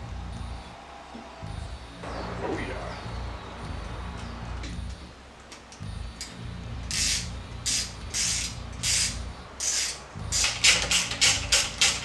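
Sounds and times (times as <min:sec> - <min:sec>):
ratchet wrench clicking: 0:06.2 - 0:12.0.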